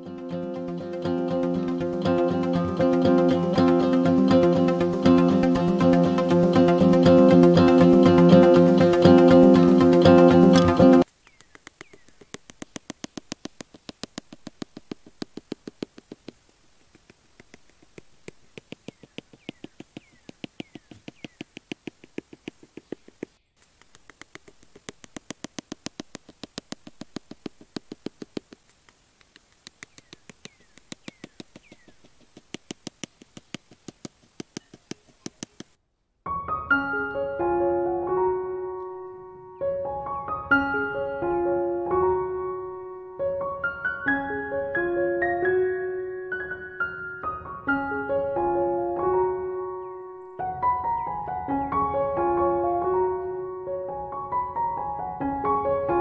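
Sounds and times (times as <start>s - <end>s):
piano music: 0.0s - 11.1s, 36.3s - 56.0s
hammer tapping wooden sticks: 10.5s - 35.8s.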